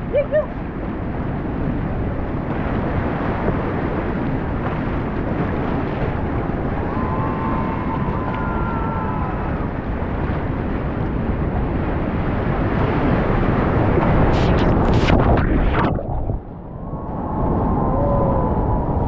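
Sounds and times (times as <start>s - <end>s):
river rapid roaring: 2.4s - 15.0s.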